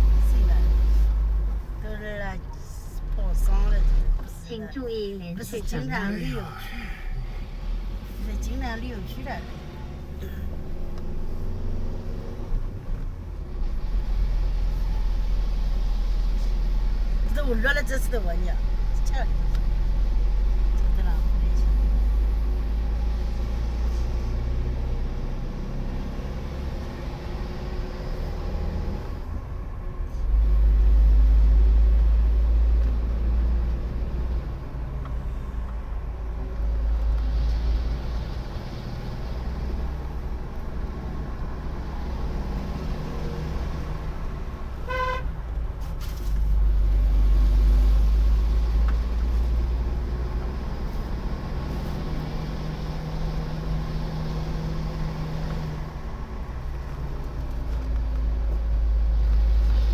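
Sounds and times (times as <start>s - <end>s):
car engine and road noise: 0.0s - 59.9s
car horn toot: 44.8s - 45.3s.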